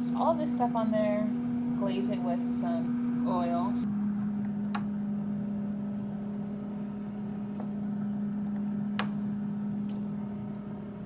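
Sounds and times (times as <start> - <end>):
air fryer fan humming: 0.0 - 11.0.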